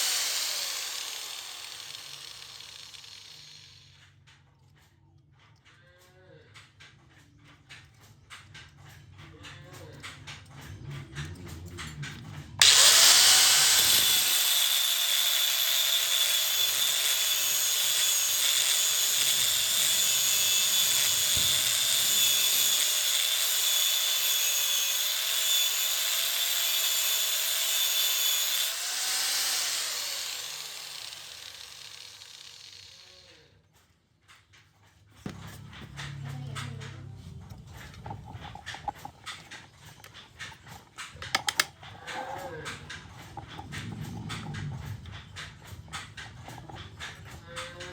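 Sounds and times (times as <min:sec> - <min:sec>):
electric grinder grinding steel: 0:00.0 - 0:04.0, 0:12.6 - 0:33.5.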